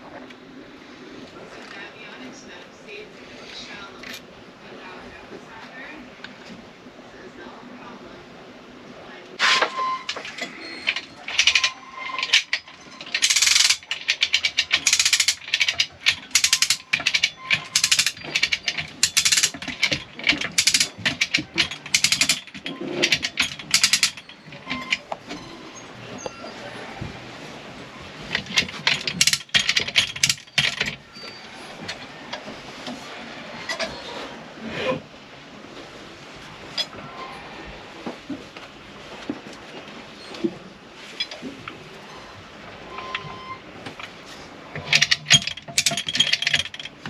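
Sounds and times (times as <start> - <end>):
rapid metal clicking: 9.7 - 25.2, 28.3 - 31.0, 44.8 - 47.0.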